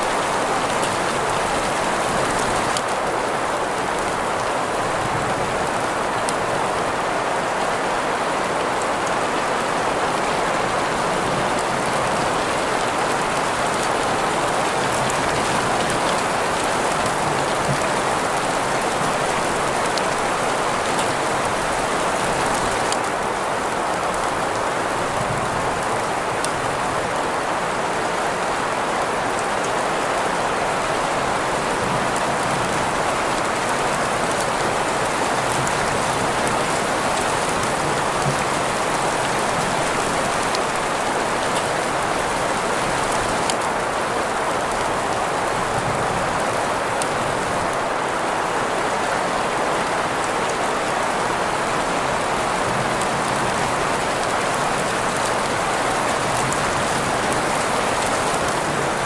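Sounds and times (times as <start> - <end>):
continuous rain: 0.0 - 59.0
ticks of rain drops: 30.8 - 59.0.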